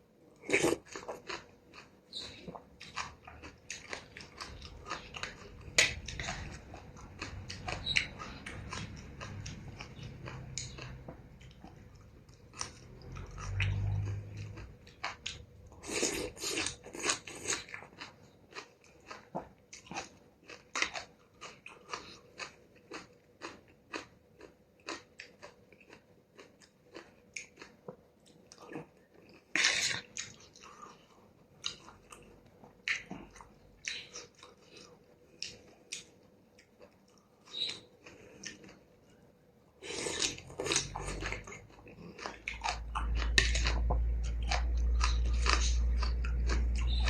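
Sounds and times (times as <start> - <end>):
wet chewing and mouth smacks: 31.6 - 38.8.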